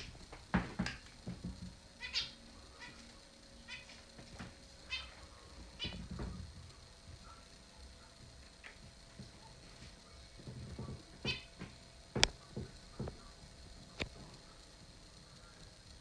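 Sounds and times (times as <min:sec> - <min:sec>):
finches chirping: 0:02.0 - 0:03.0.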